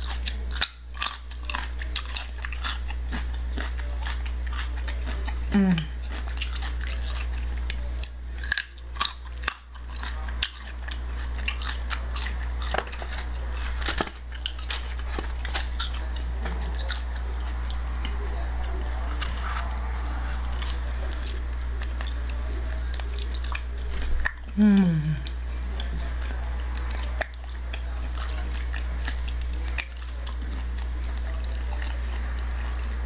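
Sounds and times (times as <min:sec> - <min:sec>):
crunching raw carrot: 0:00.0 - 0:24.5.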